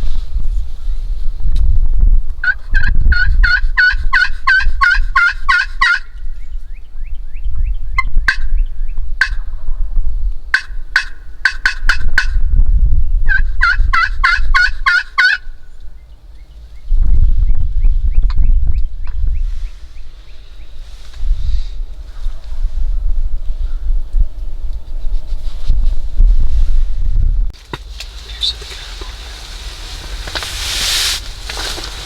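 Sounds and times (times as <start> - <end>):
wind rumble on microphone: 0.0 - 32.0
turkey yelping: 2.4 - 6.2, 10.5 - 12.3, 13.3 - 15.6, 28.0 - 32.0.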